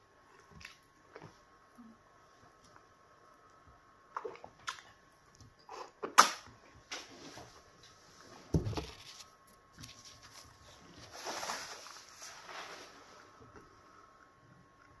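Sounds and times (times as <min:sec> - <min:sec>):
paper tissue rustling: 0:08.1 - 0:13.4.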